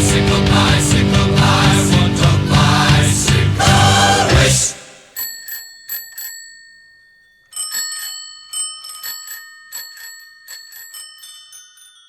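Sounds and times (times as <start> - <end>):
bicycle bells ringing: 5.0 - 12.0.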